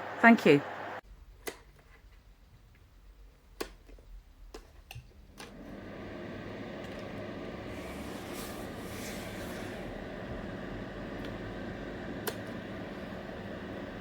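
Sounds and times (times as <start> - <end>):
fan heater blowing air: 0.0 - 1.0, 5.2 - 14.0.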